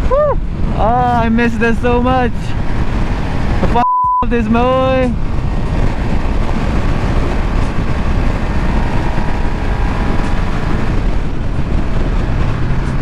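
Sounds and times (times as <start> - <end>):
wind rushing over microphone: 0.0 - 13.0
motorcycle engine running: 0.4 - 3.8, 4.5 - 13.0.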